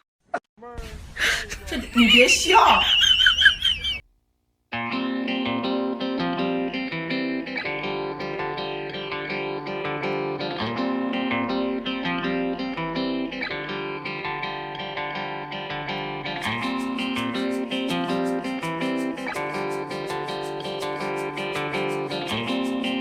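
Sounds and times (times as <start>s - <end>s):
plucked guitar tune: 4.7s - 23.0s.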